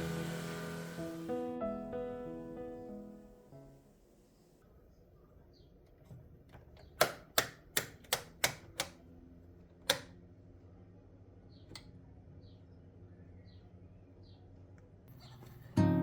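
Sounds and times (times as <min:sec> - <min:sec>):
sharp clicks or taps: 0:06.8 - 0:09.0.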